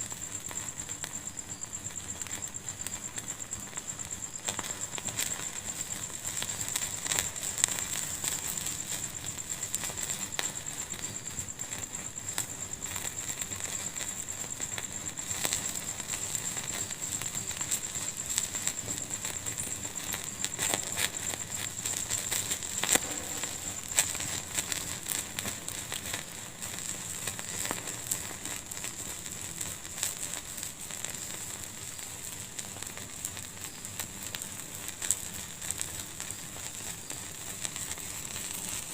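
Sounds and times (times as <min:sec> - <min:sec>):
constant high hiss: 0:00.0 - 0:38.9
wood fire crackling and popping: 0:00.0 - 0:38.9.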